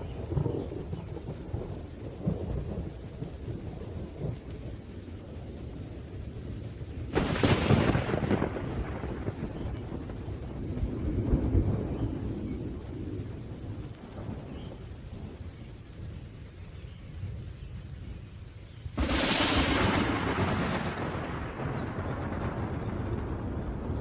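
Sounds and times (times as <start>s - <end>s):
low thunder rumble: 0.0s - 24.0s
steady rain: 0.0s - 24.0s
loud thunder crash: 19.0s - 24.0s.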